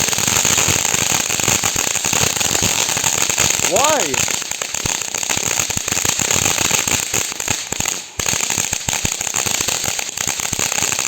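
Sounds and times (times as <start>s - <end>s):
firework fountain hissing and crackling: 0.0s - 11.0s.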